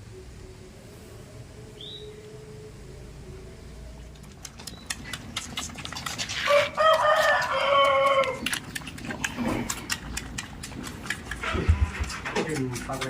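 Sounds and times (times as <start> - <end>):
rooster crowing: 6.4 - 8.4.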